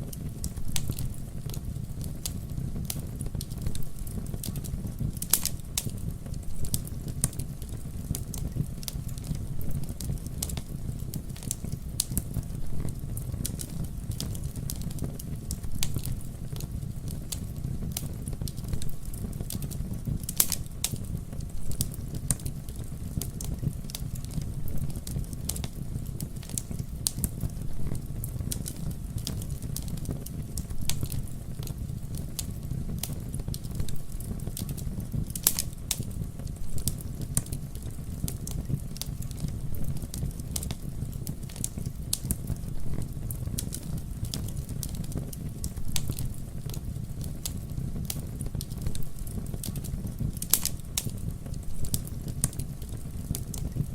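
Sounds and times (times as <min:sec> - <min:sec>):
campfire crackling and popping: 0:00.0 - 0:53.9.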